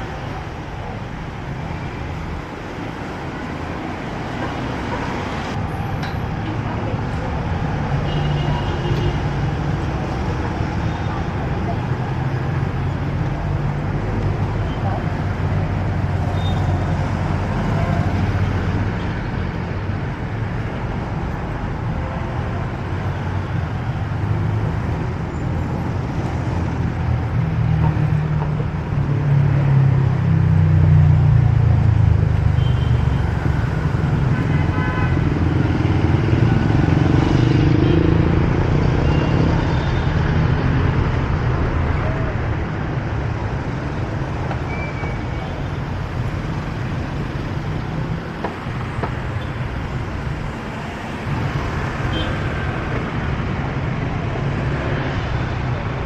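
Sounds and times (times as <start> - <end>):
vehicle engines rumbling: 0.0 - 56.0.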